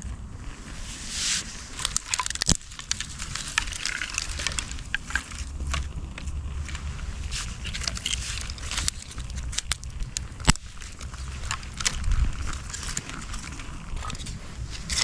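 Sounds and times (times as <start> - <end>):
campfire crackling and popping: 1.3 - 4.7, 6.7 - 11.9
wind rumble on microphone: 10.6 - 15.0.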